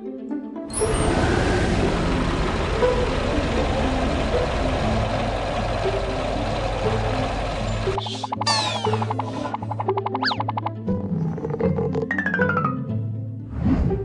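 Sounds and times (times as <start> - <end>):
background music: 0.0 - 14.0
cartoon rushing sound effect: 8.0 - 9.6.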